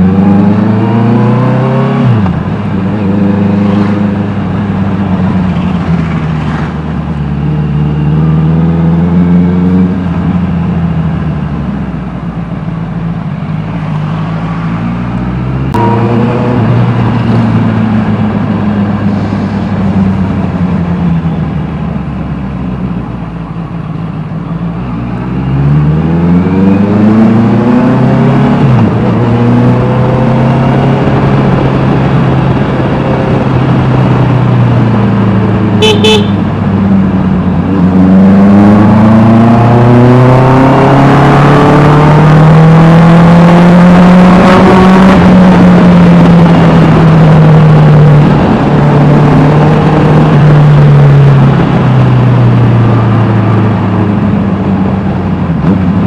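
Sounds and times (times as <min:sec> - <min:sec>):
motorcycle engine revving: 0:15.6 - 0:18.9, 0:25.4 - 0:56.0
horn toot: 0:35.8 - 0:36.4.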